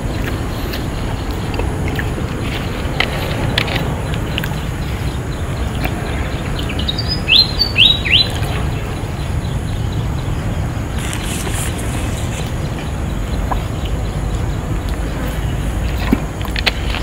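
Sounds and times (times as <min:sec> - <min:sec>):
steady low rumble: 0:00.0 - 0:17.0
bird calling sharp notes: 0:04.2 - 0:15.6.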